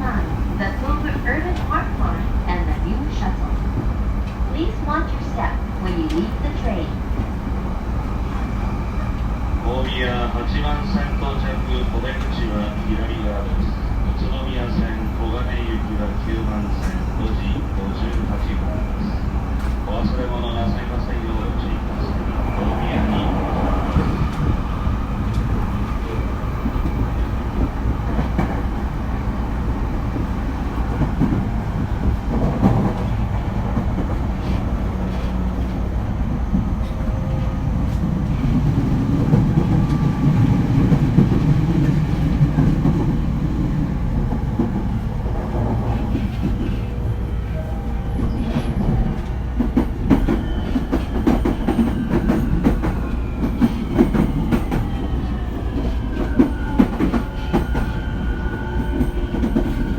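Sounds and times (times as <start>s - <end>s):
train wheels rumbling on rail: 0.0s - 59.9s
rail-joint clicks: 5.9s - 6.6s, 25.2s - 28.7s.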